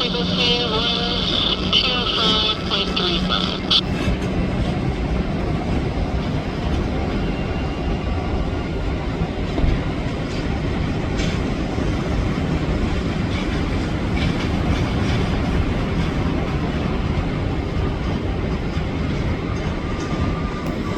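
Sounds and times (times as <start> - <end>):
jet engines running: 0.0 - 7.4.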